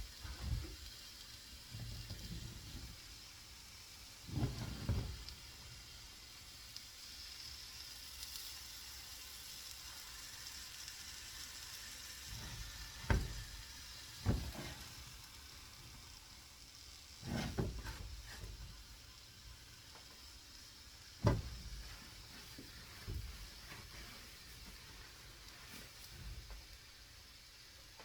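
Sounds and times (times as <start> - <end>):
omelette sizzling in a frying pan: 0.0 - 28.0.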